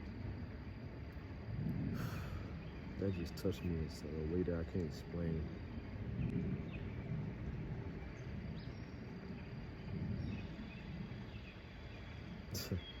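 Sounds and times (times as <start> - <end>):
faint insect tone: 0.0 - 13.0
low uneven rumble: 0.0 - 13.0.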